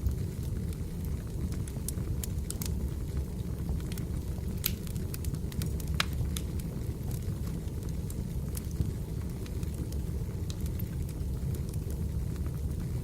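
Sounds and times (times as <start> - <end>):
crackles and pops of burning logs: 0.0 - 13.0
low noise of flames: 0.0 - 13.0.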